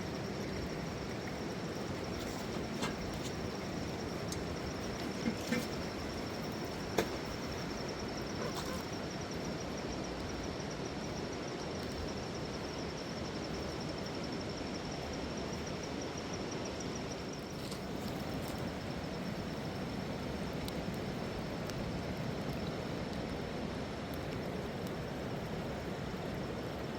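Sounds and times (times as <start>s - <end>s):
insect trilling: 0.0s - 11.3s.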